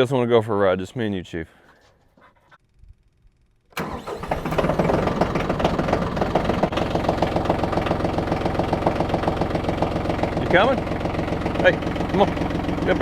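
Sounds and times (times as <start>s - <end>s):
tractor diesel engine idling: 3.8s - 13.0s.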